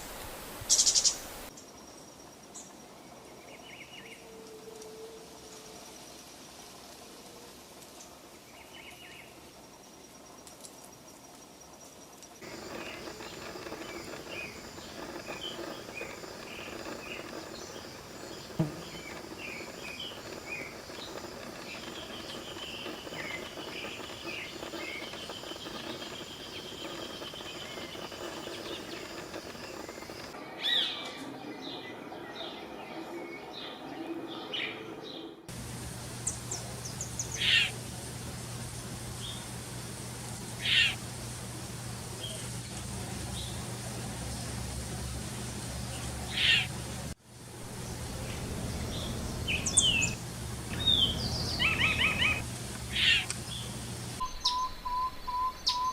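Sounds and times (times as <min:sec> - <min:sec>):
birds chirping and whistling: 0:48.9 - 0:53.7
long high bird trill: 0:49.5 - 0:53.3.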